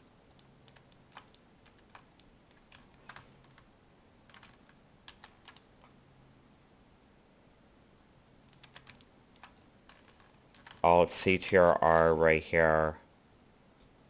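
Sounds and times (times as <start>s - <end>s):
keyboard keys clicking: 4.3s - 5.9s, 8.6s - 10.8s.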